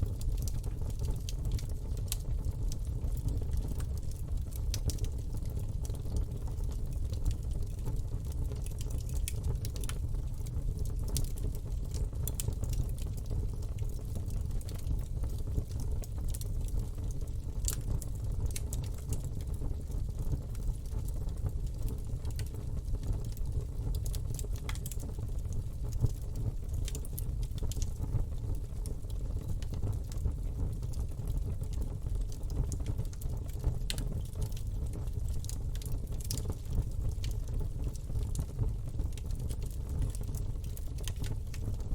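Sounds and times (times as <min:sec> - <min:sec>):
campfire crackles and pops: 0:00.0 - 0:41.9
low rumble of flames: 0:00.0 - 0:41.9.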